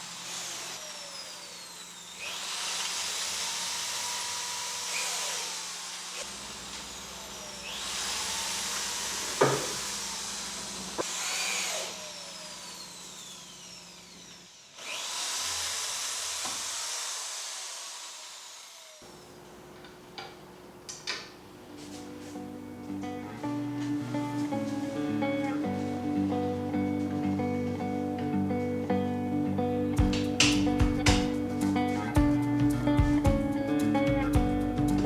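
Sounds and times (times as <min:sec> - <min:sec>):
electric motor tool whining: 0:00.0 - 0:19.2, 0:21.9 - 0:35.0
sharp knocks: 0:30.0 - 0:31.4.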